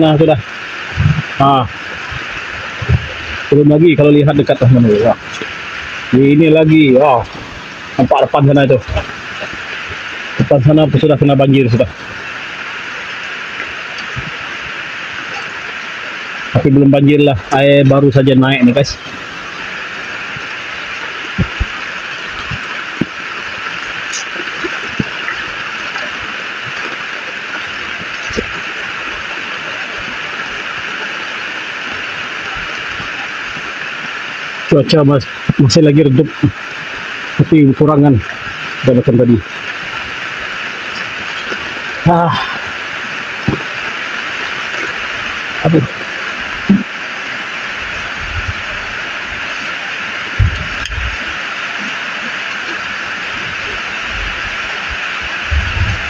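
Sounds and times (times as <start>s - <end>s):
raindrops tapping: 0.0s - 49.6s, 50.3s - 51.4s
rain hissing on puddles: 0.0s - 56.0s
dull low thumps: 2.1s - 3.4s, 21.3s - 23.2s, 48.2s - 49.0s, 50.4s - 51.2s, 54.1s - 56.0s.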